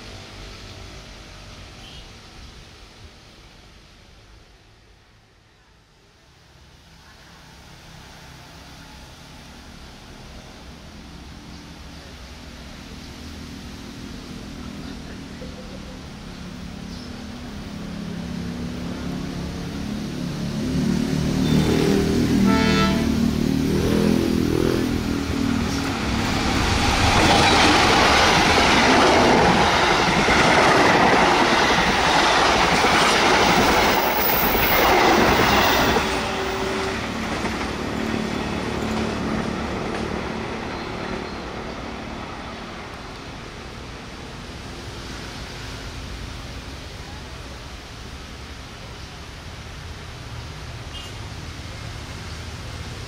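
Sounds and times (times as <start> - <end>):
train horn blast: 21.5 - 23.4, 35.8 - 37.2.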